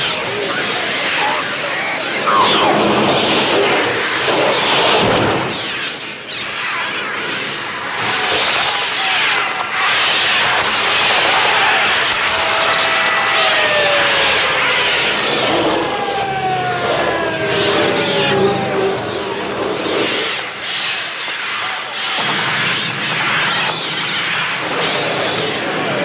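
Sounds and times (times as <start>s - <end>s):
seagulls screeching: 15.7s - 23.7s
rushing wingbeats: 17.8s - 26.0s.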